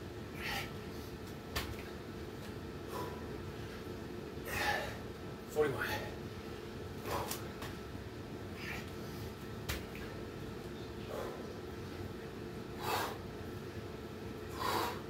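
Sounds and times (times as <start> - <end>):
man breathing hard: 0.3 - 1.2, 2.8 - 5.1, 7.0 - 7.5, 8.5 - 9.4, 11.0 - 11.6, 12.7 - 13.4, 14.5 - 15.0.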